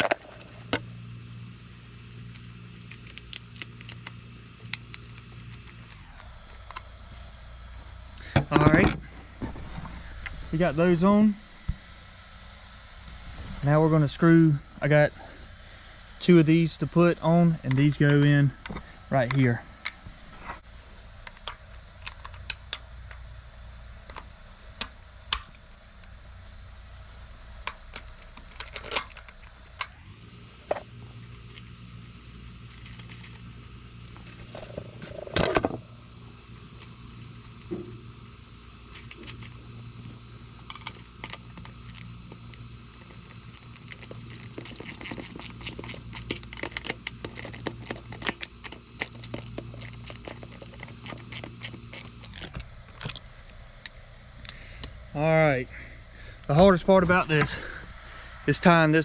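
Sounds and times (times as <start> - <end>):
small fittings clicking and rattling: 0.0 - 6.1, 27.9 - 39.7, 40.5 - 55.0
low steady hum: 0.0 - 59.0.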